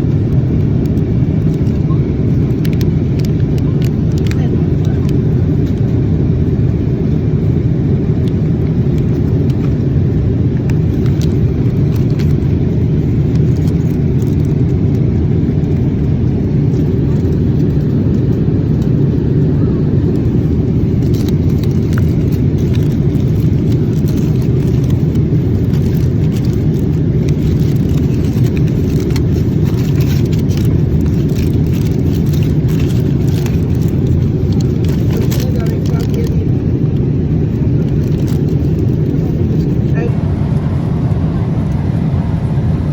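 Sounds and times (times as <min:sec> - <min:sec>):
airliner cabin engine roar: 0:00.0 - 0:42.9.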